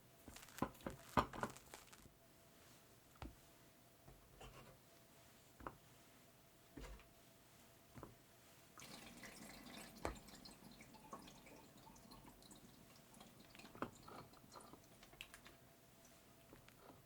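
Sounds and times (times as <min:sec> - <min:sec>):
small clicks and wet ticks: 0:08.8 - 0:17.0.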